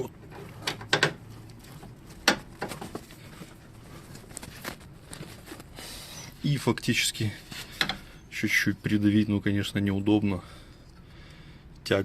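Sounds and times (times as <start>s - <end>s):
sharp clicks and knocks: 0.1s - 3.1s.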